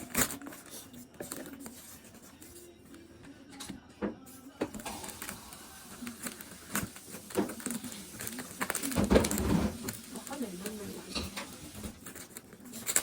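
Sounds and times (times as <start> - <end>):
packaging rustling and clicking: 4.8 - 10.8.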